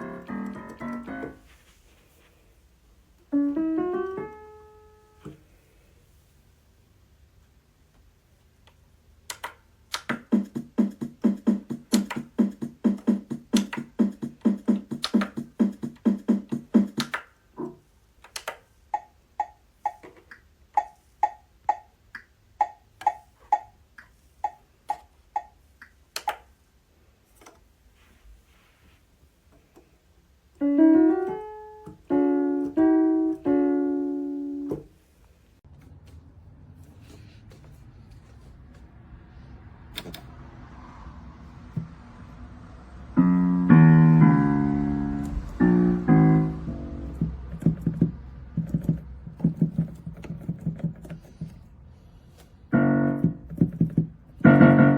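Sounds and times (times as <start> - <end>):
digital piano playing: 0.0 - 1.6, 3.3 - 5.3, 30.6 - 34.8, 43.2 - 51.0, 52.7 - 54.9.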